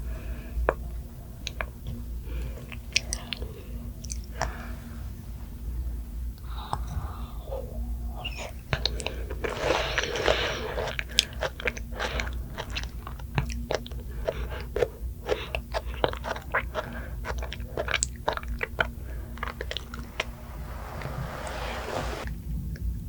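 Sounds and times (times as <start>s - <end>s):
person chewing crunchy food: 8.8s - 20.4s.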